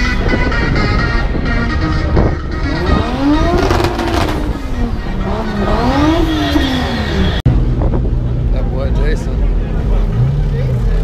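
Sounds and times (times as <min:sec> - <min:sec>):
car engine revving: 0:02.6 - 0:07.4.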